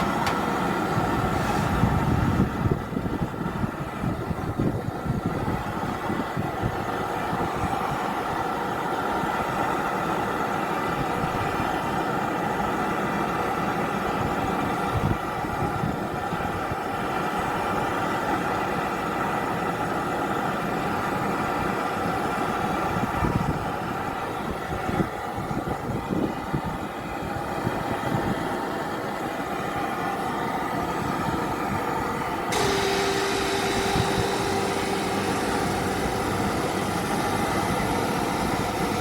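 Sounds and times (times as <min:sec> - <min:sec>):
air conditioner humming: 0:00.0 - 0:10.8, 0:30.2 - 0:39.0.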